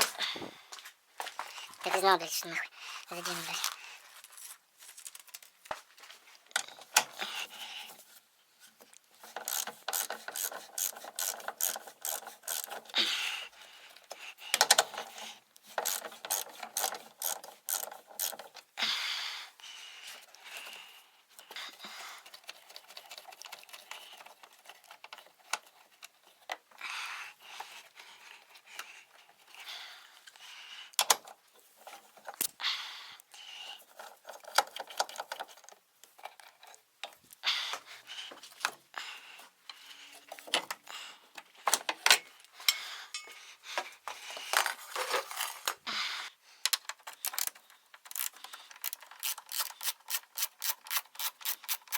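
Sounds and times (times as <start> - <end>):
ratchet wrench clicking: 9.4 - 12.8, 15.8 - 18.4, 47.3 - 51.9.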